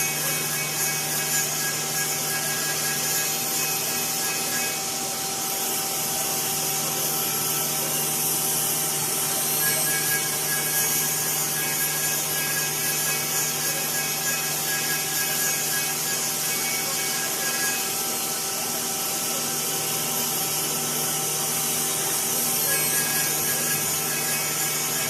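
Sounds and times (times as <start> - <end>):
spindle machining wood: 0.0 - 25.0.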